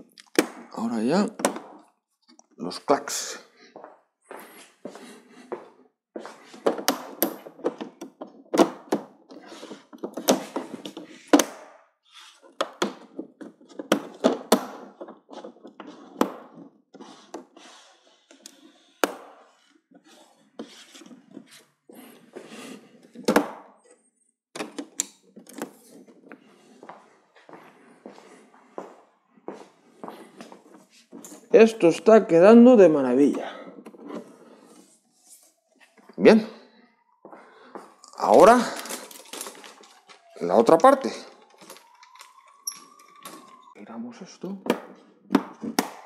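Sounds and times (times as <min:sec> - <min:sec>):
plastic rubbing: 0:09.2 - 0:24.0.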